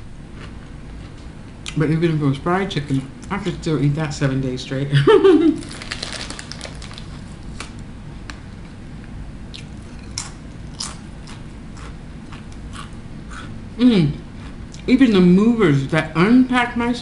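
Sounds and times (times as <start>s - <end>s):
crunching crisp chip: 5.6s - 7.8s.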